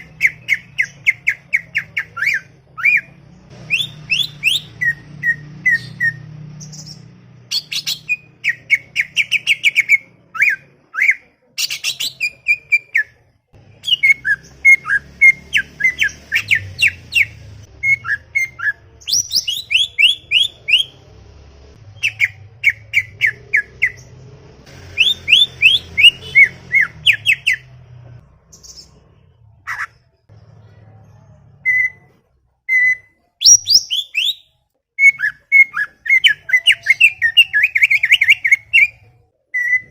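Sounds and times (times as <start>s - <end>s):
bird singing whistled notes: 0.1s - 13.2s, 13.8s - 21.0s, 24.9s - 27.6s, 32.7s - 39.9s.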